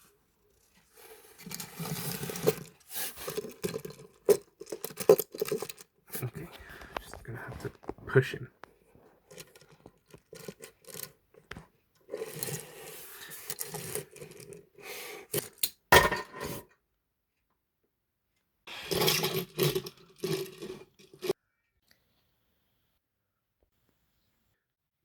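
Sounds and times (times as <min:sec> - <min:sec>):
toy scraping and rubbing: 0:00.0 - 0:07.9, 0:09.2 - 0:15.6, 0:18.7 - 0:21.4.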